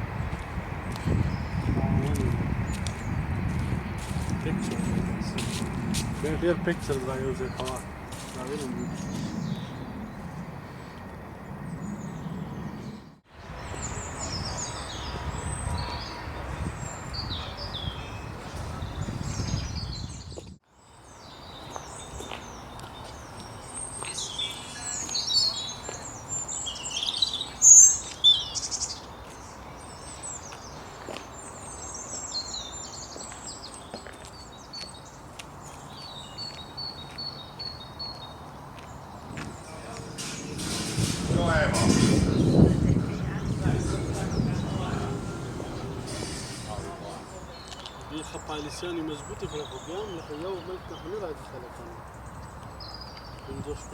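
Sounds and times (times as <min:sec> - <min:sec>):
songbirds singing and chirping: 0:00.1 - 0:53.9
low rumble: 0:39.2 - 0:47.8.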